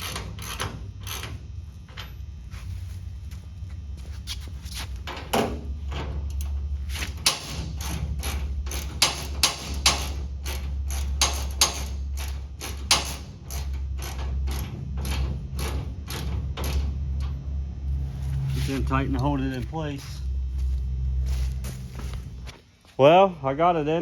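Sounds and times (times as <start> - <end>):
ratchet clicking: 0.0 - 1.4, 6.3 - 16.8
low steady hum: 0.0 - 24.0.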